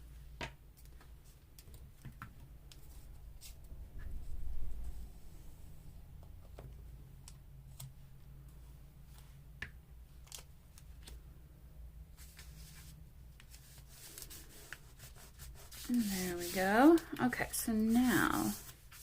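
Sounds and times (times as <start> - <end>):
paper rustling: 12.2 - 19.0.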